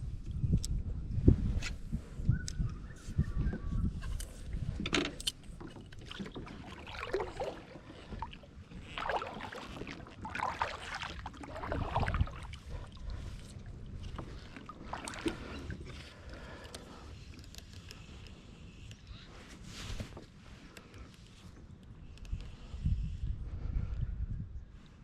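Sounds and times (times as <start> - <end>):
paddle splashing in water: 5.9 - 16.0.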